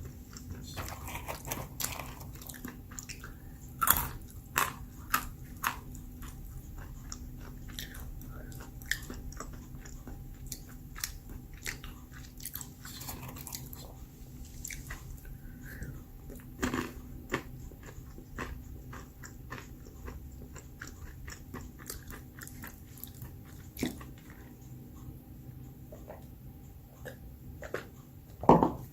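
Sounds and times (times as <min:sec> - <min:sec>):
chewing and crunching nuts: 0:00.0 - 0:28.4.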